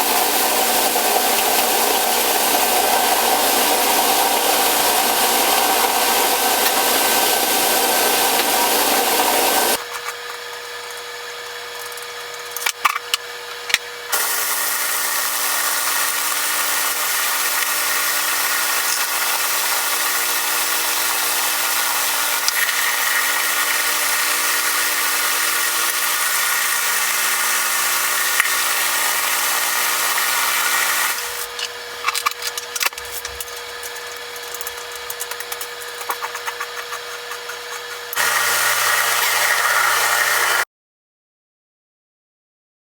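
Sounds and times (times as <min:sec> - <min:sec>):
power tool motor grinding: 0:00.0 - 0:40.7
clicks and taps: 0:31.6 - 0:38.2.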